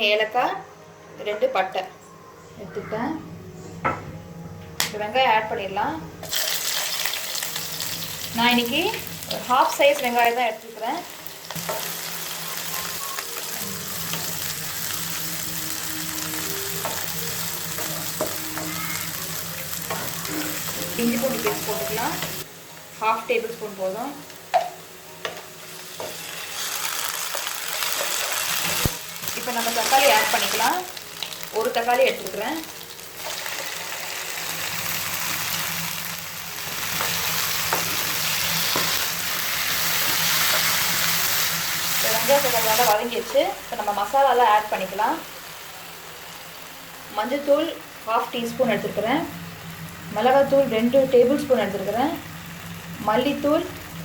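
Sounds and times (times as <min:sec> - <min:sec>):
onions sizzling in hot oil: 0:06.2 - 0:54.0
spoon tapping a pan: 0:24.5 - 0:26.2.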